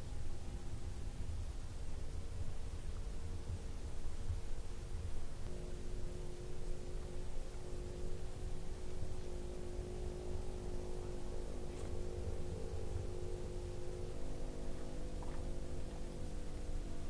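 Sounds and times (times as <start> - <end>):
car engine idling: 4.4 - 17.0.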